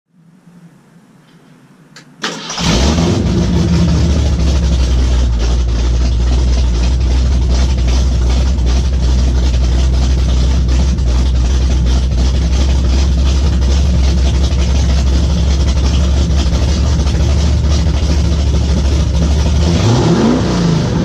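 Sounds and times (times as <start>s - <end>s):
truck engine starting and idling: 2.0s - 21.0s.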